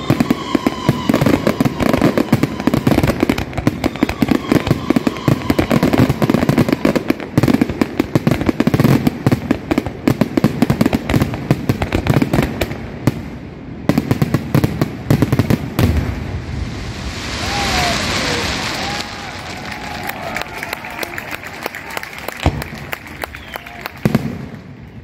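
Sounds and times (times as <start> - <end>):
fireworks bangs and crackles: 0.0 - 25.0
crowd cheering: 17.0 - 25.0.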